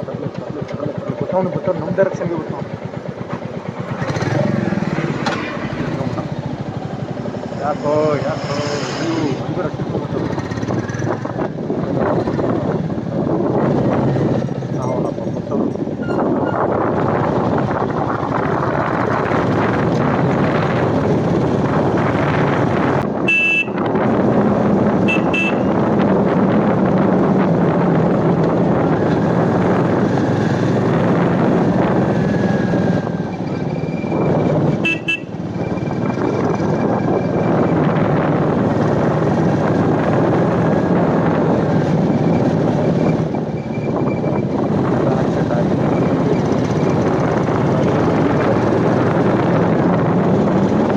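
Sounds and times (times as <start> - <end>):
motorcycle engine running: 0.0 - 8.4, 9.1 - 50.9
wind rush: 3.6 - 50.9
short horn beeps: 23.3 - 23.8, 25.0 - 25.8, 34.8 - 35.4.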